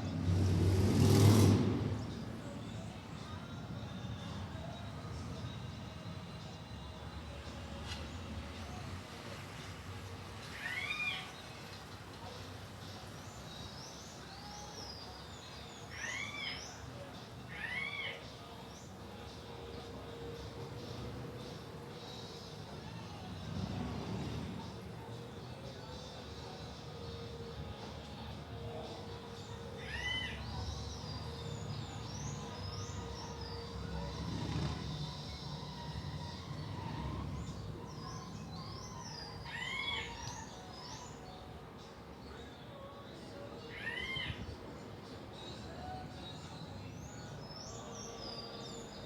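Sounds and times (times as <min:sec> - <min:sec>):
low background noise: 0:00.0 - 0:49.0
birds chirping: 0:10.4 - 0:49.0.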